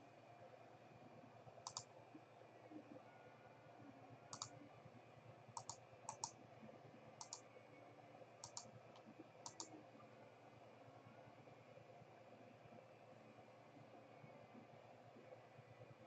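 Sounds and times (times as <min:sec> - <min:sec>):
low room hum: 0:00.0 - 0:16.0
computer mouse double clicks: 0:04.3 - 0:04.5, 0:05.6 - 0:06.3, 0:07.2 - 0:07.4, 0:08.4 - 0:08.7, 0:09.4 - 0:09.7.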